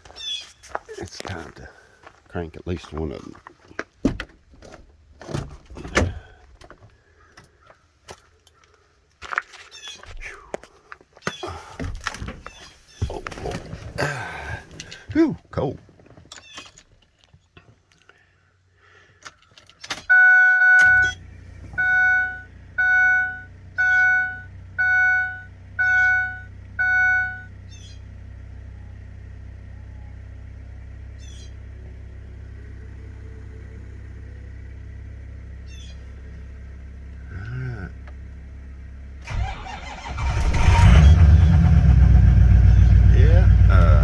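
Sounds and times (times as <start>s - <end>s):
diesel engine cranking and starting: 4.3s - 6.8s, 13.2s - 15.1s, 20.8s - 44.0s
diesel engine running: 11.5s - 15.0s, 20.8s - 44.0s
dashboard chime dinging: 21.8s - 27.5s
steady low hum: 25.2s - 39.3s.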